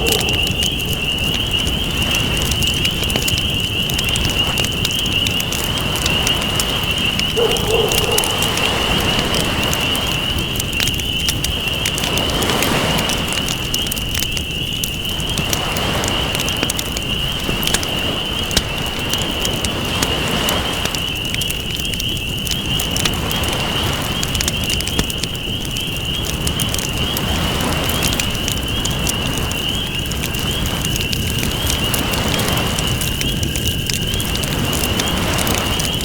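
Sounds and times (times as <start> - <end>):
ocean waves: 0.0 - 2.5, 5.6 - 10.9, 11.8 - 14.2, 15.0 - 21.4, 22.6 - 25.3, 26.3 - 29.5, 31.6 - 33.0, 34.4 - 36.0
campfire crackling and popping: 0.0 - 36.0.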